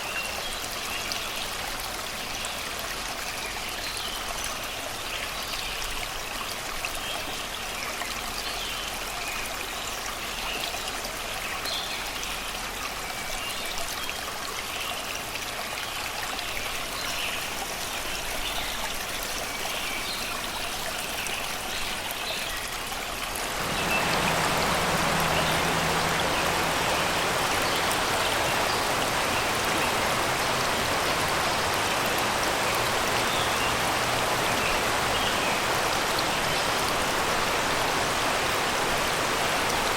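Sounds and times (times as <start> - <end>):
river water rushing over rocks: 15.2 - 39.9
birds singing: 17.0 - 22.7, 23.5 - 36.9.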